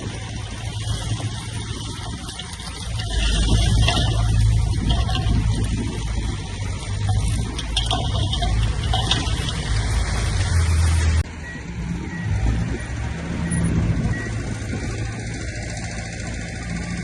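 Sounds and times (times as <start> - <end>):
earthmoving machinery diesel engine: 0.0 - 17.0
machine engine hum: 0.0 - 17.0
reversing alarm beeps: 11.4 - 14.4.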